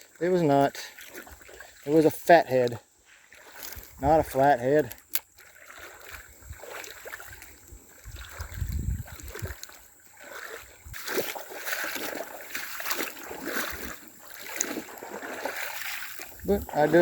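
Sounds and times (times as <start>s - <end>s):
water splashing and sloshing: 0.0s - 17.0s
small clicks: 4.8s - 5.5s.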